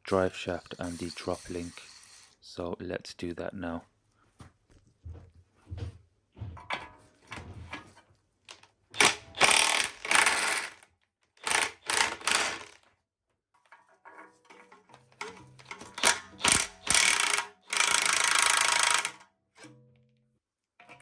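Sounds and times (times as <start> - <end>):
power tool rattling on bolts: 9.0 - 12.8, 14.6 - 19.2.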